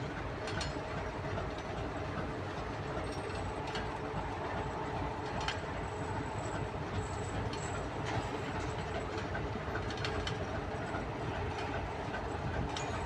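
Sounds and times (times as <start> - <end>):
diesel locomotive running: 0.0 - 13.0.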